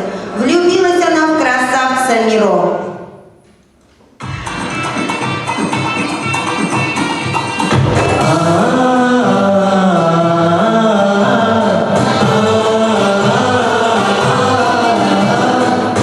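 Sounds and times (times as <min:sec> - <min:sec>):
percussive music with tambourine: 0:04.2 - 0:09.2, 0:11.8 - 0:16.0
choir singing slow melody: 0:08.0 - 0:16.0.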